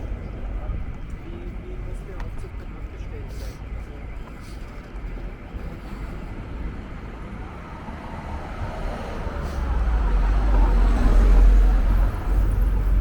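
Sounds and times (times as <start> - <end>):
motor vehicle approaching: 4.1 - 13.0.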